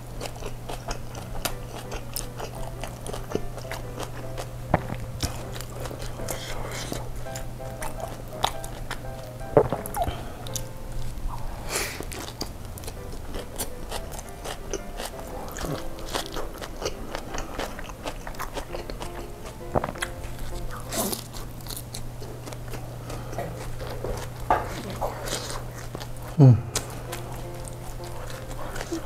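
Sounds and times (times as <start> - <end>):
wet chewing with crunches: 0.0 - 29.0
person biting into wrap: 19.6 - 22.9.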